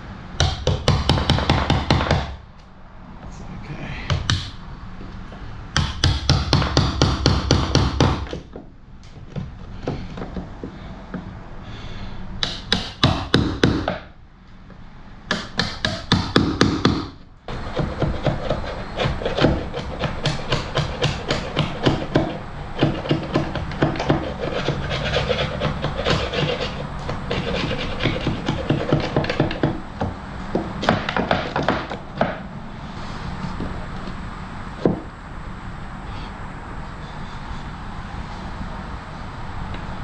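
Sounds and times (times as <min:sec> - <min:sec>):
hand tool rubbing wood: 0:12.4 - 0:14.0, 0:15.3 - 0:34.2.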